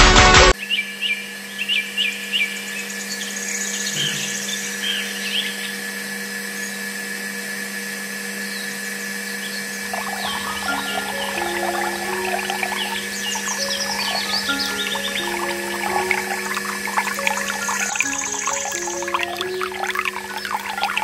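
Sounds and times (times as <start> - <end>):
birds chirping: 9.6 - 21.0.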